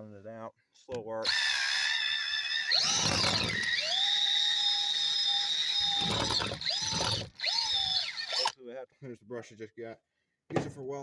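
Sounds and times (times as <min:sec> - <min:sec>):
electric drill boring into wood: 0:01.2 - 0:08.5.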